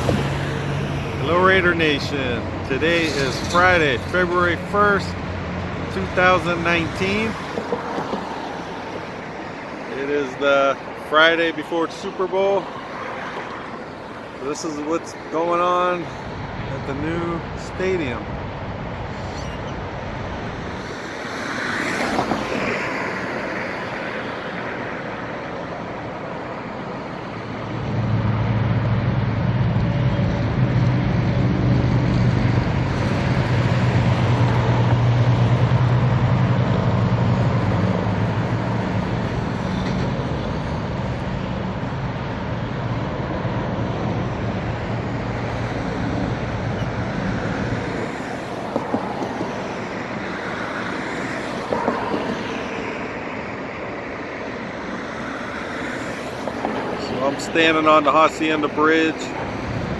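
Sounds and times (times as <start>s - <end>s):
car sweeping by: 0.0s - 2.2s, 20.6s - 24.8s
heavy vehicle engine drone: 0.0s - 59.9s
road traffic passing: 0.0s - 59.9s.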